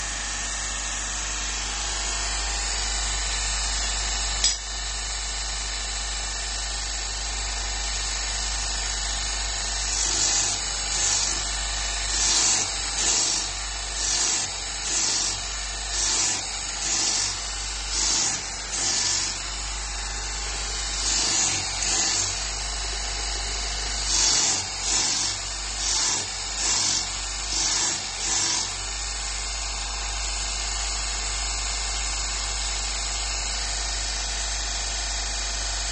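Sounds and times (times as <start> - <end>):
sharp click: 4.4 - 4.7
belt grinder motor hum: 9.2 - 30.2
blade grinding on belt: 9.8 - 29.0.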